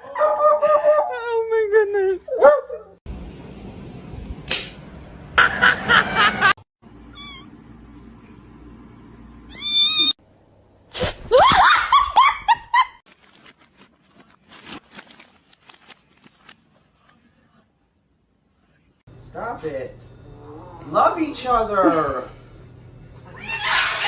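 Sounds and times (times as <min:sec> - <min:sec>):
cats meowing: 0:23.3 - 0:24.0.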